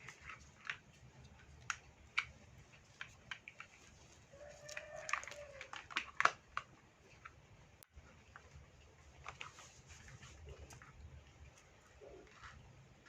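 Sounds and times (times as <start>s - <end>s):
plastic toy blocks clicking: 0.0s - 7.4s.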